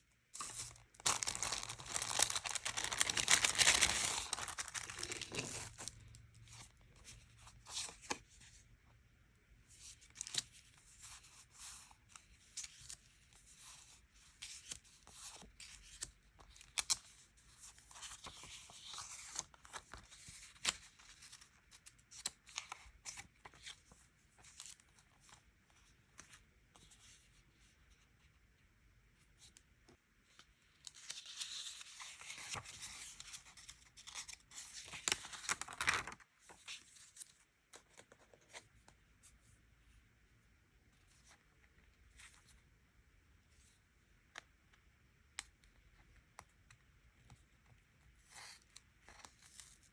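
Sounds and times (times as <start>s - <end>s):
stickers and paper being peeled: 0.4s - 6.7s
paper rustling: 0.4s - 8.2s, 30.9s - 38.8s.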